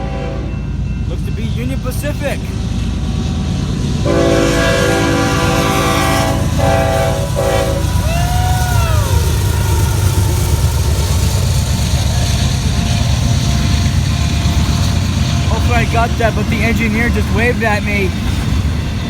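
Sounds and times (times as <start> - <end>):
locomotive air horn: 0.0 - 0.6, 4.0 - 8.3
freight train rumbling past: 0.0 - 19.0.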